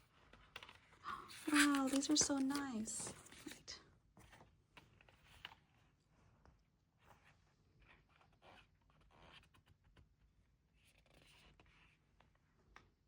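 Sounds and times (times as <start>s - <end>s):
paper and plastic rustling: 0.7s - 5.6s.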